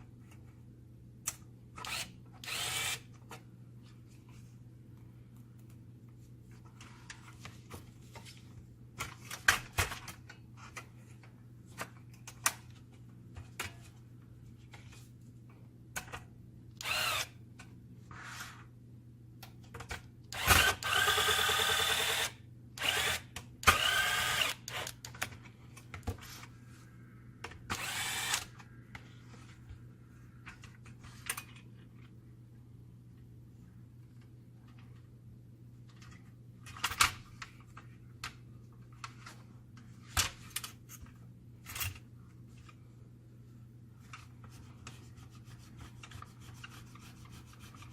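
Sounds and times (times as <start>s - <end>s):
electric screwdriver whining: 1.9s - 3.1s, 16.8s - 17.3s, 20.4s - 25.0s, 27.7s - 28.6s.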